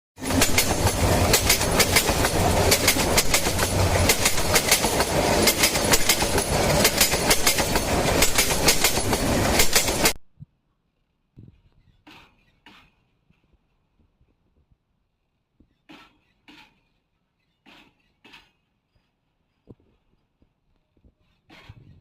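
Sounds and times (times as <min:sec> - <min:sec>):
train wheels clattering: 0:00.2 - 0:10.2.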